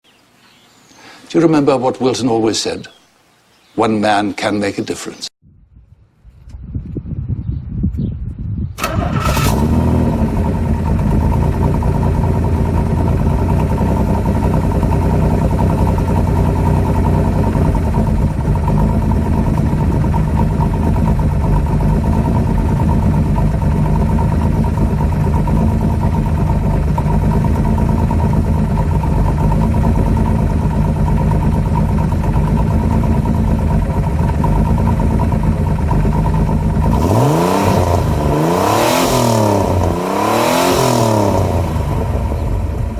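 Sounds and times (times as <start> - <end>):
car engine idling and revving: 8.8 - 42.9.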